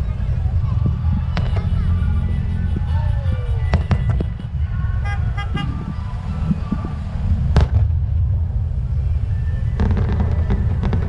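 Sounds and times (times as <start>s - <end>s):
fireworks bursts rumbling: 0.0s - 11.0s
sharp firework crack: 0.9s - 2.0s, 3.7s - 4.4s, 6.5s - 9.2s, 9.8s - 11.0s
short horn toots: 1.4s - 5.7s.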